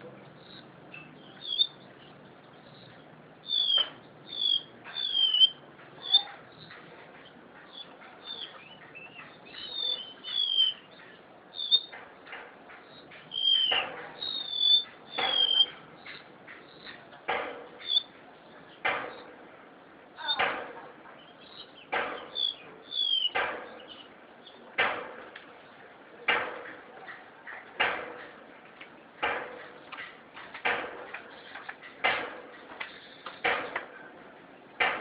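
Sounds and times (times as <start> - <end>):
bird singing high whistled notes: 1.0 - 1.8, 3.5 - 6.3, 7.8 - 11.0, 11.6 - 11.9, 13.3 - 15.8, 22.3 - 23.4.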